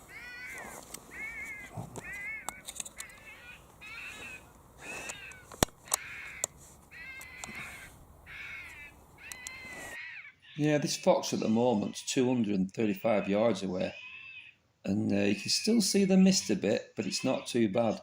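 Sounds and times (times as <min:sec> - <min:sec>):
wavering squeals of fox caller: 0:00.0 - 0:18.0
sharp clicks: 0:02.0 - 0:03.8, 0:05.0 - 0:07.6, 0:09.2 - 0:09.6.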